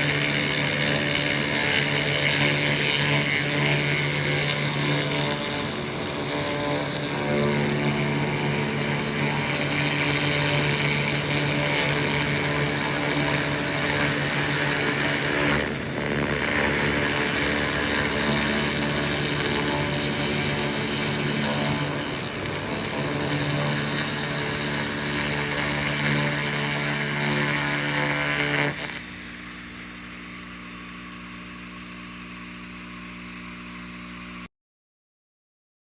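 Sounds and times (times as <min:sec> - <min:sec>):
machine humming: 0:00.0 - 0:34.4
laser burning rust hissing: 0:00.0 - 0:34.5.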